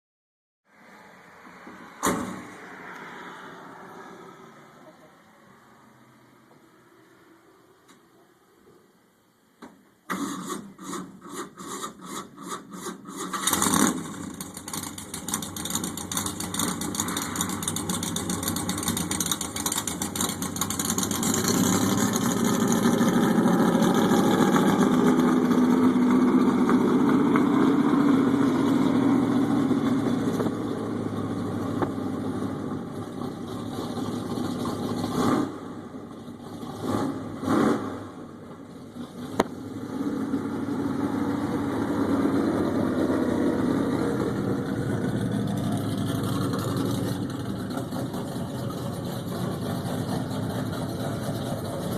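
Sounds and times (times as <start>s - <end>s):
engine starter cranking: 10.1s - 20.5s
truck engine running and revving: 13.0s - 51.9s.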